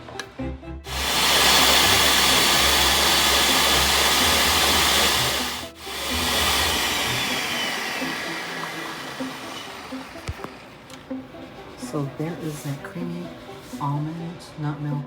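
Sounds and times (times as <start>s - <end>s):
blender running at high speed: 0.9s - 10.8s.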